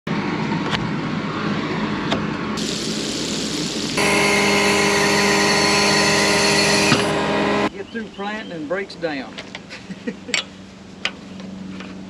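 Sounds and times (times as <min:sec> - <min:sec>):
engine running: 0:02.5 - 0:07.8
steady hum: 0:02.5 - 0:07.8.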